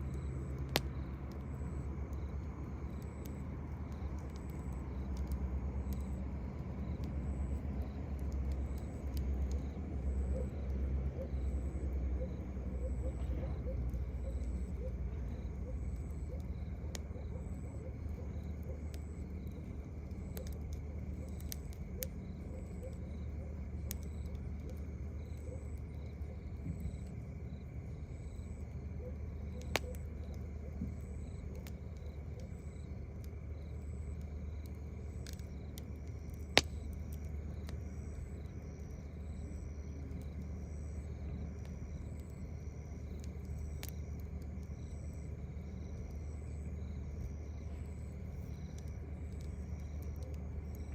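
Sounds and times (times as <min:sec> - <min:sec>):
campfire popping: 0:00.0 - 0:50.9
constant low rumble: 0:00.0 - 0:50.9
crickets chirping: 0:00.0 - 0:50.9.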